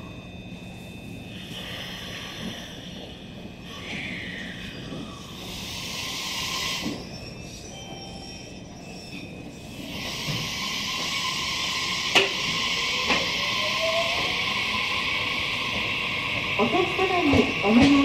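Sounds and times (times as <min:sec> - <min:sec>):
train running noise: 0:00.0 - 0:18.0.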